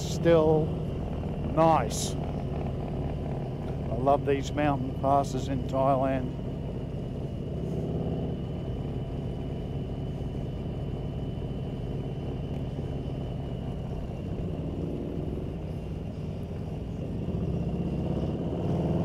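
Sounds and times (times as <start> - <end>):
faint high whine: 0.0 - 18.0
motorcycle engine rumble: 0.0 - 19.0
wind and road noise: 0.0 - 19.0.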